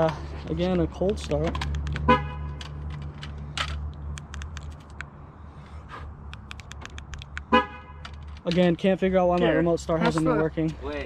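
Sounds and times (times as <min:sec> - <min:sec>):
light clicks and taps: 0:00.0 - 0:05.1.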